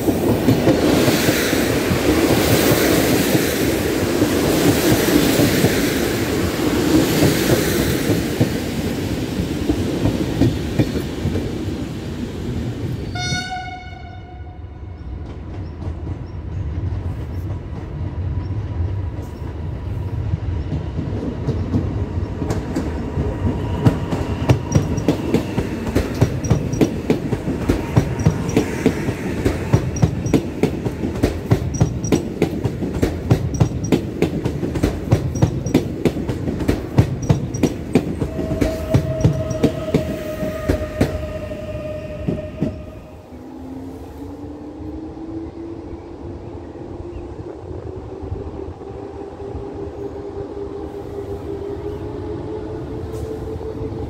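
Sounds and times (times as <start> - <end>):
wheels clickety-clack over rail joints: 0.0 - 42.9
train rumble: 0.0 - 54.0.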